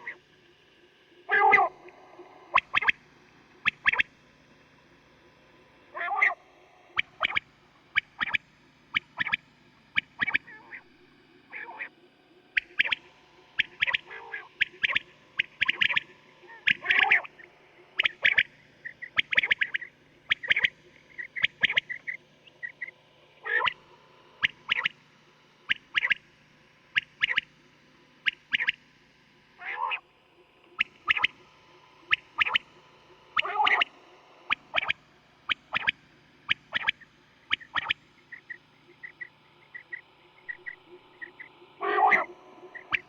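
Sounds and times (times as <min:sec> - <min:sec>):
faint low hum: 0:00.0 - 0:43.0
quails calling: 0:01.3 - 0:01.8, 0:02.4 - 0:03.0, 0:03.6 - 0:04.0, 0:06.0 - 0:06.4, 0:07.0 - 0:09.4, 0:10.0 - 0:10.8, 0:12.6 - 0:23.8, 0:24.4 - 0:25.0, 0:25.7 - 0:26.2, 0:27.0 - 0:27.5, 0:28.2 - 0:28.8, 0:29.6 - 0:30.0, 0:30.8 - 0:31.4, 0:32.0 - 0:32.7, 0:33.4 - 0:43.0.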